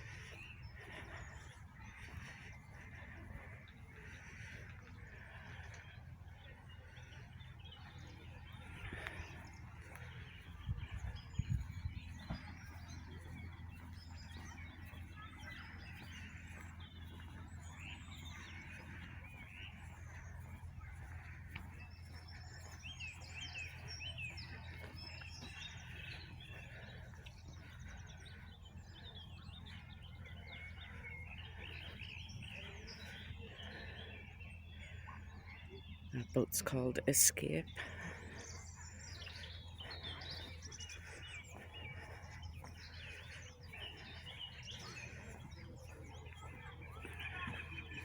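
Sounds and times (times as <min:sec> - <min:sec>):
songbirds singing: 0:00.0 - 0:48.0.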